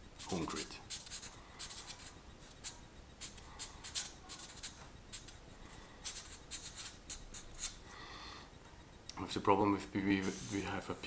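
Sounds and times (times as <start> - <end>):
pen scratching while writing: 0.2 - 5.4, 6.1 - 7.8.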